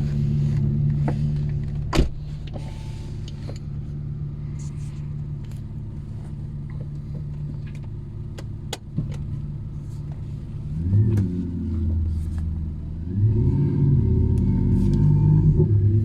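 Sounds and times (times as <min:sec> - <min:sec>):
car engine idling: 0:00.0 - 0:16.0
car engine revving: 0:09.0 - 0:16.0.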